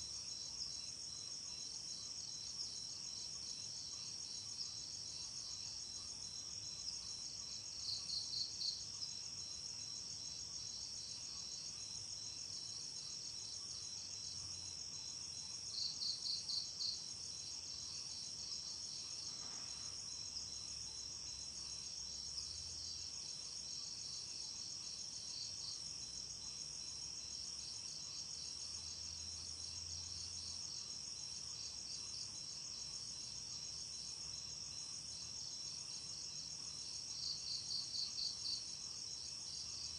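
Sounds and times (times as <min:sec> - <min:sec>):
quick cricket chirps: 0:00.0 - 0:39.9.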